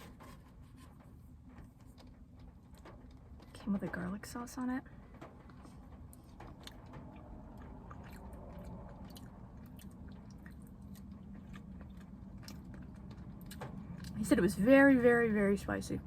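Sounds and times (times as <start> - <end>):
person chewing food: 0.0 - 3.5, 5.2 - 14.2
low steady hum: 0.0 - 16.0.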